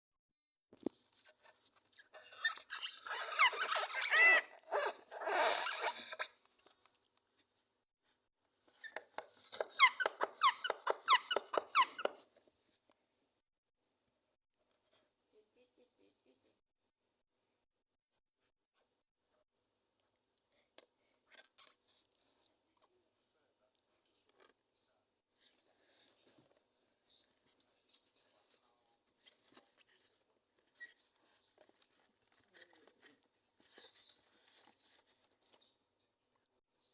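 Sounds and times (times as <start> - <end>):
parrot chirping: 2.3 - 6.2, 9.5 - 12.2.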